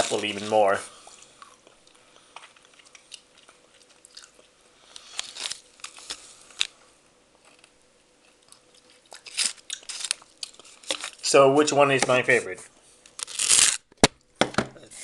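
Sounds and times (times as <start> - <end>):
person chewing crunchy candy: 0.0 - 6.8, 7.4 - 11.2, 13.1 - 13.8.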